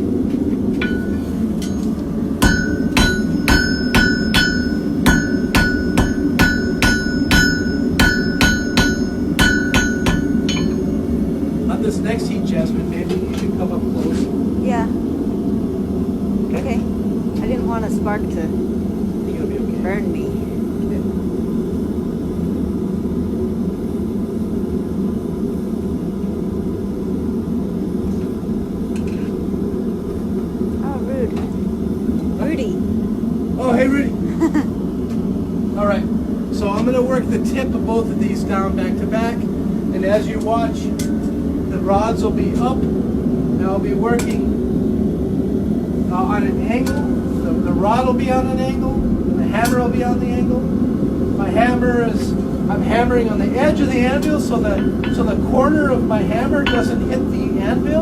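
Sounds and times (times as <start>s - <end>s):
hammer striking steel on anvil: 0.8s - 11.1s, 54.2s - 55.5s, 56.6s - 57.1s.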